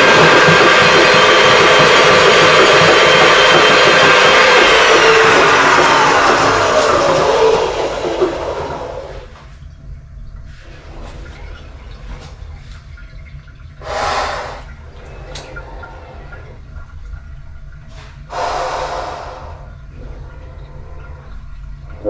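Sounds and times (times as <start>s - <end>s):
loud machine noise: 0.0s - 9.3s, 13.8s - 16.3s, 18.3s - 20.6s
water gurgling and draining: 0.0s - 22.0s
low steady hum: 7.7s - 22.0s.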